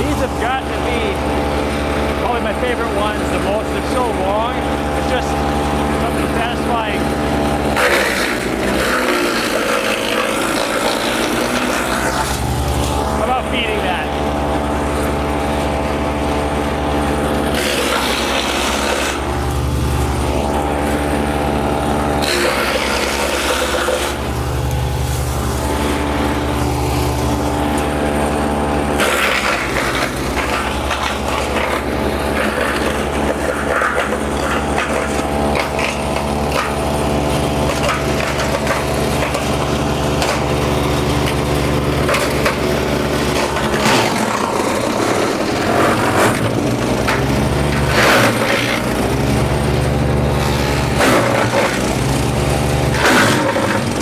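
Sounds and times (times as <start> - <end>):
wood chipper engine running: 0.0 - 54.0
wood cracking and snapping: 7.7 - 13.1, 28.9 - 36.7, 37.3 - 49.1, 50.4 - 52.1.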